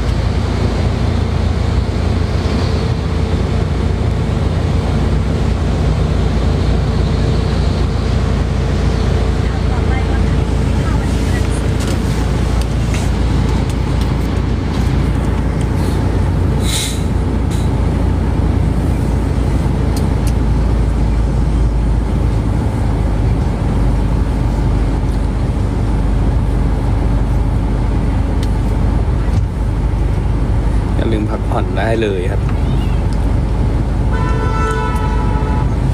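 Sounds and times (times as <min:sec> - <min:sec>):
vehicle rumble from inside: 0:00.0 - 0:35.9
short hiss: 0:16.6 - 0:17.7.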